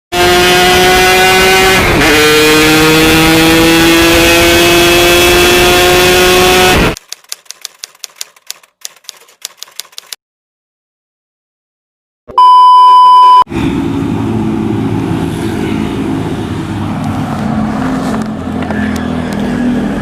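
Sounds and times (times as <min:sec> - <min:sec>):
motorcycle engine at high revs: 0:00.1 - 0:07.0.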